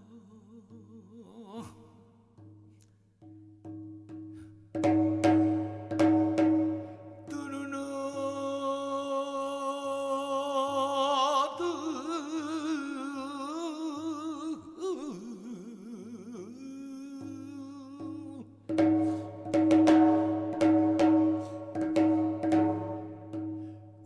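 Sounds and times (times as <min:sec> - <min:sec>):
person singing wordless melody: 0:00.0 - 0:02.4, 0:07.2 - 0:19.4.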